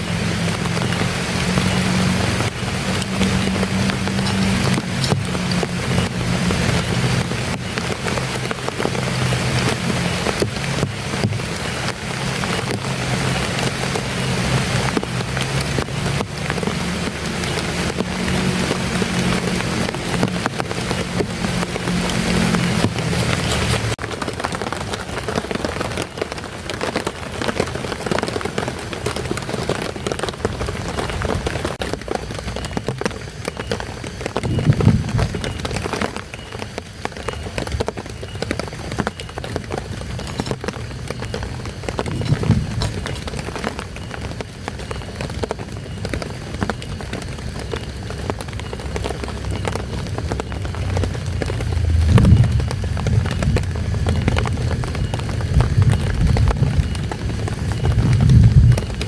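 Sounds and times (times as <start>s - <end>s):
heavy rain falling: 0.0s - 59.0s
low rumble: 49.8s - 59.0s.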